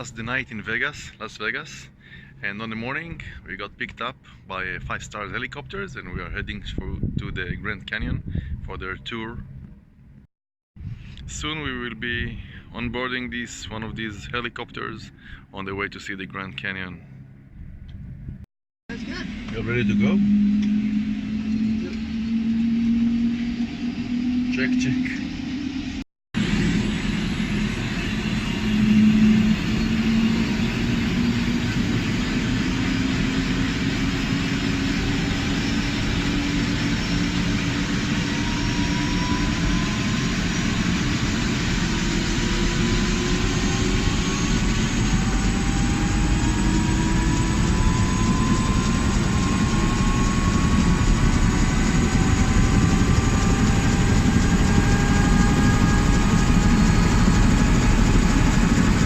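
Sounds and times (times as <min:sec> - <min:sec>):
helicopter engine and rotor: 0:18.9 - 0:59.0
rising whine: 0:18.9 - 0:59.0.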